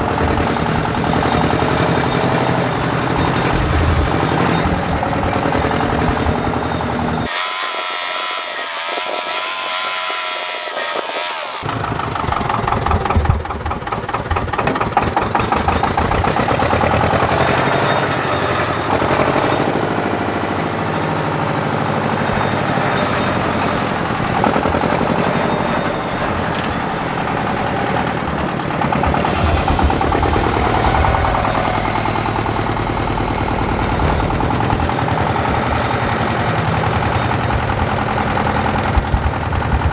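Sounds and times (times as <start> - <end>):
engine running: 29.0 - 36.1
higher-pitched sound: 29.2 - 34.7.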